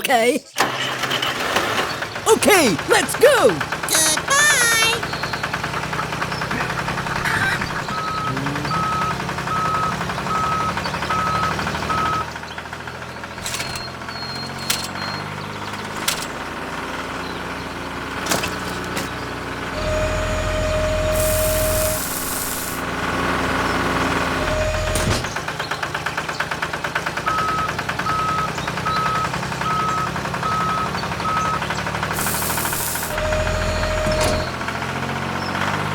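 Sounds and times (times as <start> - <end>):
small engine rattling: 5.0 - 20.0
beeps: 7.8 - 12.2
clicks and knocks: 13.4 - 15.0.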